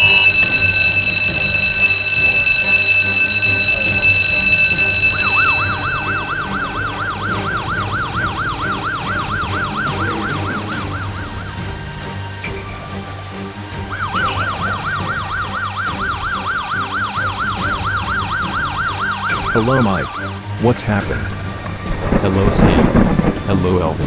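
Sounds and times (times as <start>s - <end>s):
electronic alarm tone: 0.0s - 11.7s, 13.8s - 20.4s
fire engine siren: 0.0s - 21.2s.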